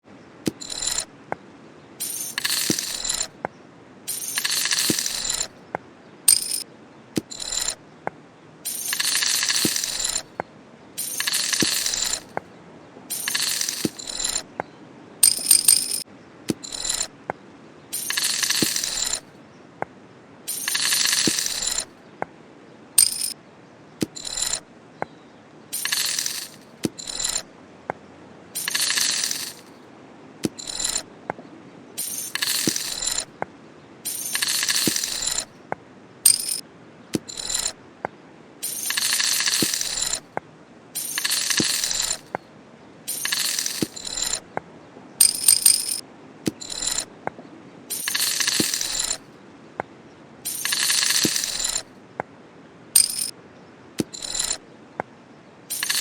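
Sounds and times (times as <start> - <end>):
sharp clicks and taps: 0.5 - 1.1, 15.2 - 17.1, 36.3 - 36.6, 45.2 - 49.2, 53.0 - 53.3
bottle contents rattling: 2.0 - 3.3, 4.1 - 5.5, 6.3 - 6.6, 8.7 - 10.3, 11.0 - 12.4, 13.1 - 14.4, 15.2 - 17.1, 17.9 - 19.2, 20.5 - 21.9, 23.0 - 23.4, 25.8 - 27.4, 28.6 - 29.7, 32.0 - 33.3, 34.1 - 35.5, 36.3 - 36.6, 38.6 - 40.2, 41.0 - 42.4, 43.1 - 44.4, 45.2 - 47.0, 47.9 - 49.2, 50.5 - 51.8, 53.0 - 53.3, 55.7 - 56.0.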